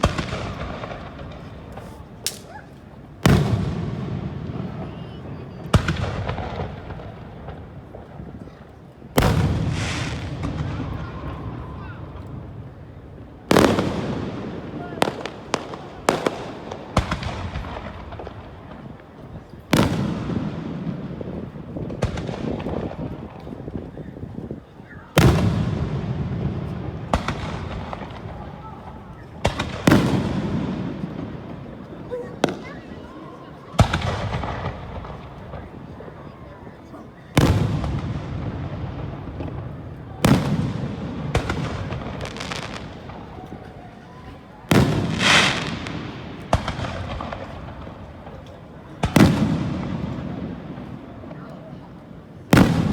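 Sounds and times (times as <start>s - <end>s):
firework shells booming: 0.0s - 2.5s, 13.5s - 18.9s, 25.2s - 31.8s, 37.4s - 43.6s, 44.7s - 51.4s, 52.5s - 52.9s.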